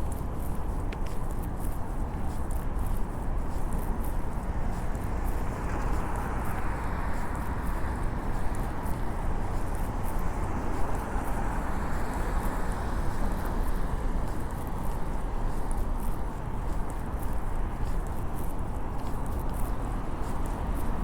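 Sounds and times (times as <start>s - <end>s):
low city rumble: 0.0s - 21.0s.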